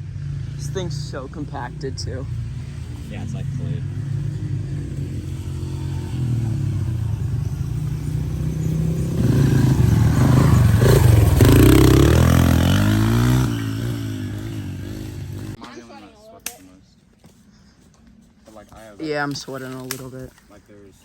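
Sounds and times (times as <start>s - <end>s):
dirt bike engine revving: 0.0s - 15.6s.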